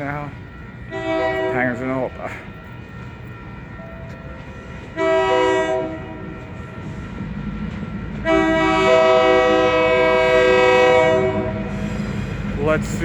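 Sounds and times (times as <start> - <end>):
train rumble: 0.0 - 13.0
train air horn chord: 0.9 - 1.8, 4.6 - 6.3, 8.2 - 12.3.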